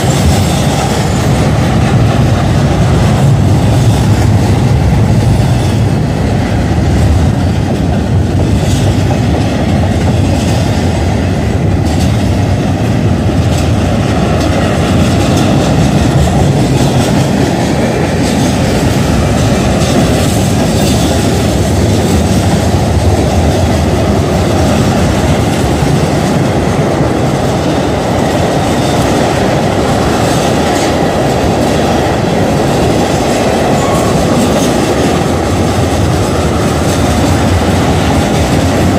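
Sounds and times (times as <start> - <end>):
clickety-clack over rail joints: 0.0 - 38.9
train wheels rumbling on rail: 0.0 - 38.9.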